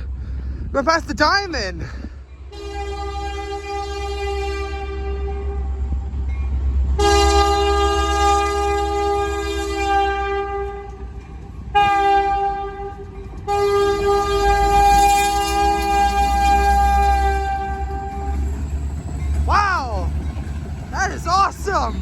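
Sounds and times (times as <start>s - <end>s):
low rumble of passing locomotive: 0.0s - 22.0s
locomotive air horn blasts: 2.5s - 5.8s, 7.0s - 11.1s, 11.7s - 18.6s.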